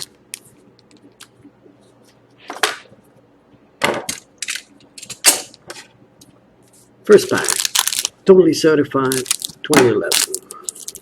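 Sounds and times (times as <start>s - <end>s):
card wrappers rustling: 7.1s - 8.2s, 9.0s - 11.0s.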